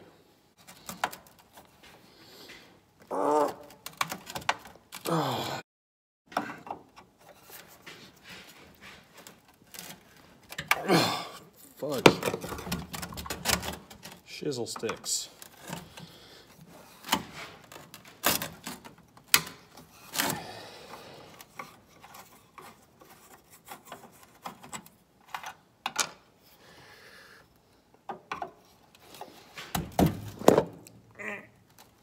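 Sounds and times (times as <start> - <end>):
hand tools clicking and scraping: 6.3 - 26.1.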